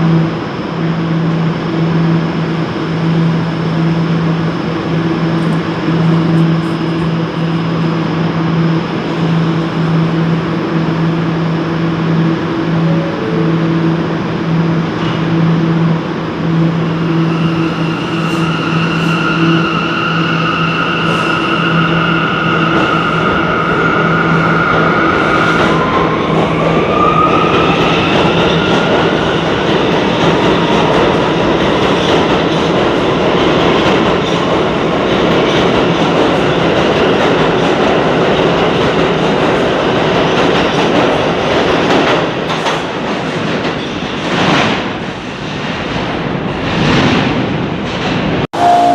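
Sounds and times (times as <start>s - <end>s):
train hum: 0.0s - 48.9s
high whine: 11.0s - 20.8s.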